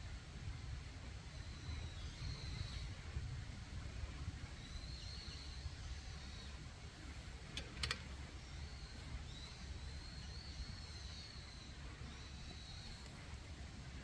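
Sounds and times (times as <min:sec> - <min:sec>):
sharp clicks: 0:07.5 - 0:08.1.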